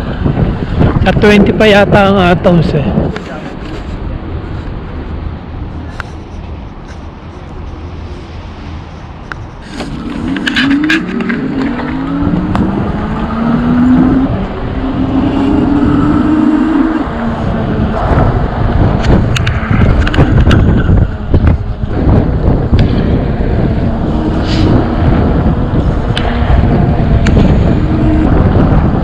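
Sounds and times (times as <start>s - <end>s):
vehicle engine accelerating: 7.2s - 29.0s.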